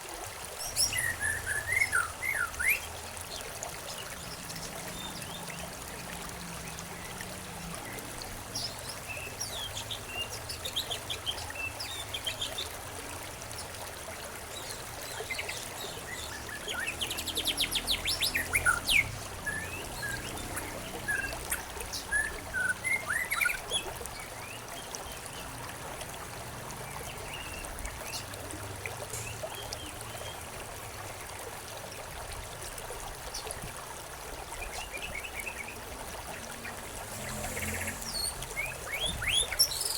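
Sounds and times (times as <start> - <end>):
trickle of running water: 0.0 - 39.9
small birds chirping: 14.6 - 23.9, 36.6 - 39.9.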